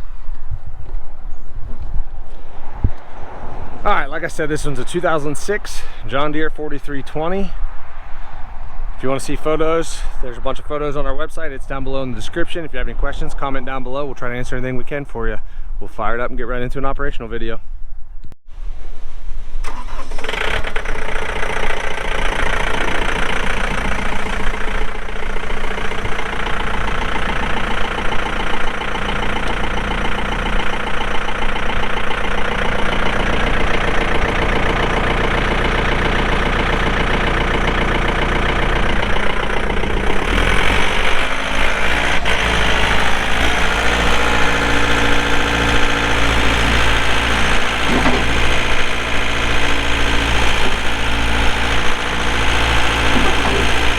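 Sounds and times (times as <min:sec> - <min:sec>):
tractor diesel engine idling: 0:03.8 - 0:07.5, 0:19.7 - 0:53.9.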